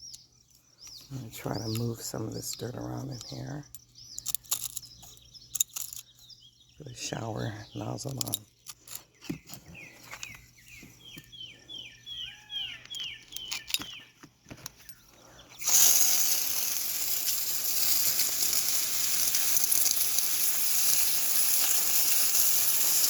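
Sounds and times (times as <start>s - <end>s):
bird calling: 0.0s - 15.7s
person speaking: 1.1s - 3.7s, 6.8s - 8.5s
hose spraying water: 15.6s - 23.0s.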